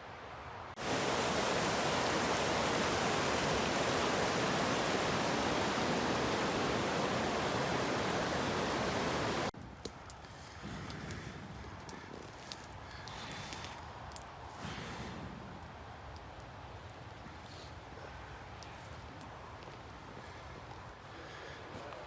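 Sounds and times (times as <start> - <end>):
rushing water: 0.8 - 9.5.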